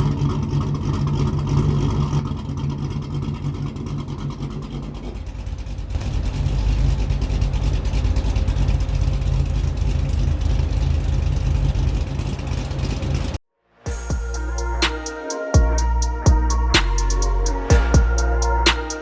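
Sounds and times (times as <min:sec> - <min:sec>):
loud car engine through exhaust: 0:00.0 - 0:13.4.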